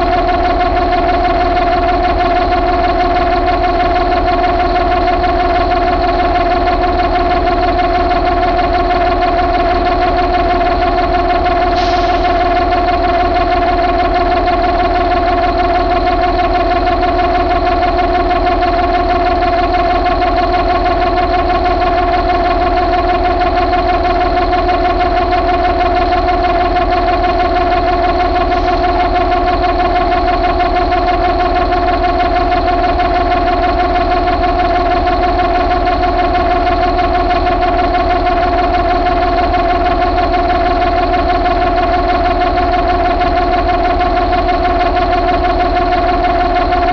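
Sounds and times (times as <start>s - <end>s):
diesel engine running: 0.0s - 46.9s
steady whine: 0.0s - 46.9s.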